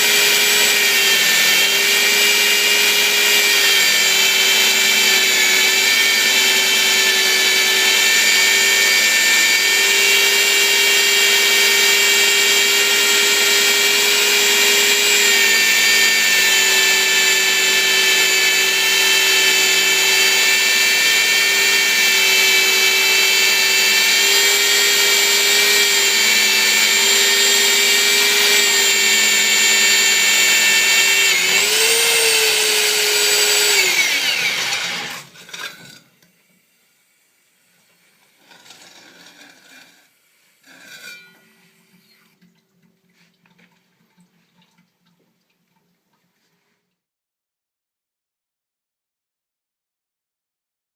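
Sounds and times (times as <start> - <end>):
metal drill motor whine: 0.0 - 36.7.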